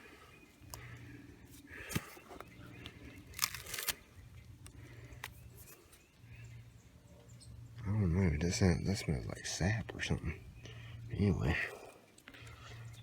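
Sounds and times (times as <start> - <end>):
bark cracking: 1.6 - 5.4.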